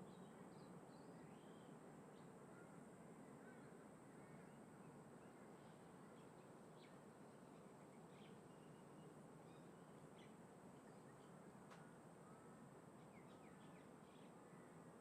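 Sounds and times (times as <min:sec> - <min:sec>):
faint bird chirps: 0:00.0 - 0:01.8.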